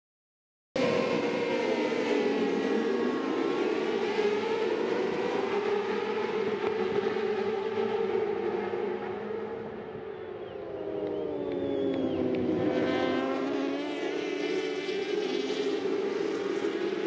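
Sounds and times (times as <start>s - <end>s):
racing motorcycles at high revs: 0.9s - 17.0s.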